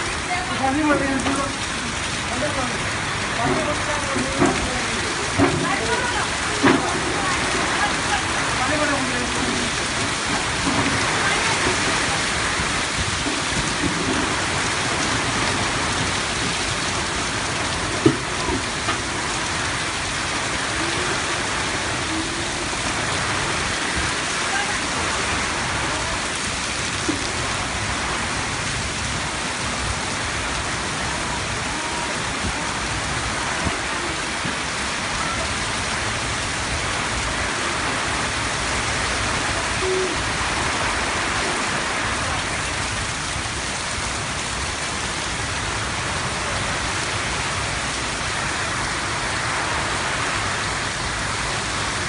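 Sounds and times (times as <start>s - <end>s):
heavy rain falling: 0.0s - 52.0s
faint raindrop ticks: 3.4s - 7.5s.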